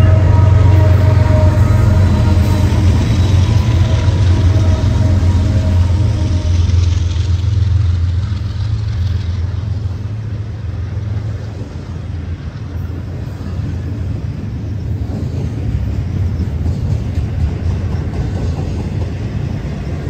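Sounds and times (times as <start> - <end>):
train passing rumble: 0.0 - 20.0.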